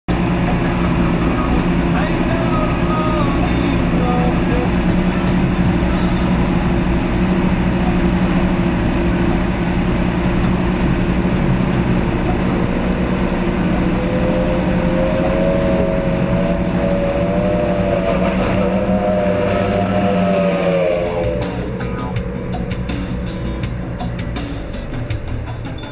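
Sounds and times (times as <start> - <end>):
powerboat engines running: 0.0 - 25.9
high whine rising in pitch: 0.1 - 25.9.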